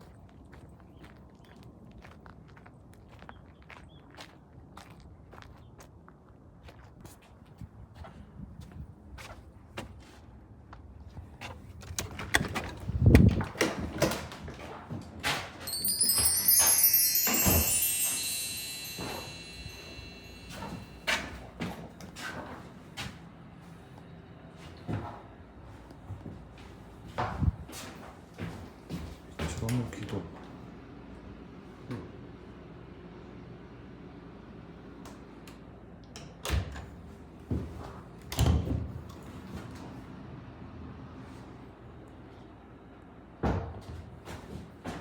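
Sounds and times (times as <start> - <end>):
high chime-like ringing tones: 15.7 - 21.3.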